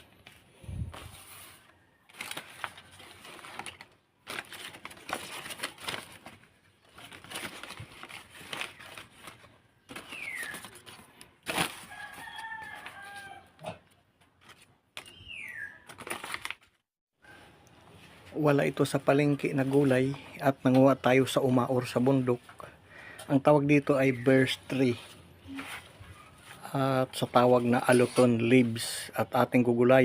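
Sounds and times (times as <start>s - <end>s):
rooster crowing: 11.8s - 13.8s.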